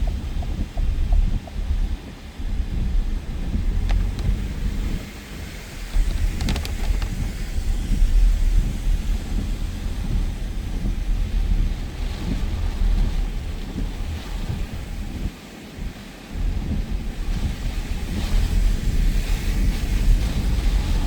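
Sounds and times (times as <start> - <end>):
heavy rain: 0.0 - 21.0
wind gusts buffeting microphone: 0.0 - 21.0
sharp clicks: 5.9 - 7.4.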